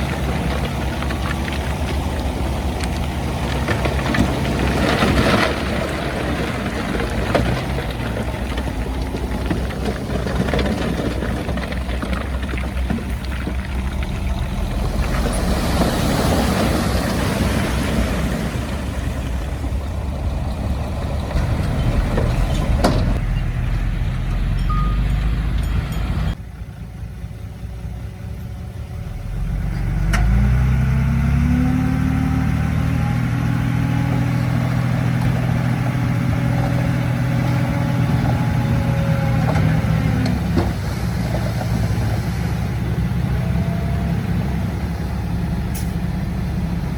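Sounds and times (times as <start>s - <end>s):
heavy diesel engines running: 0.0s - 46.9s.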